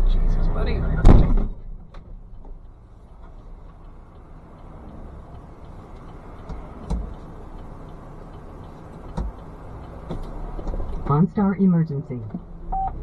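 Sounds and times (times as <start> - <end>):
loud car crash impact: 1.0 - 1.8.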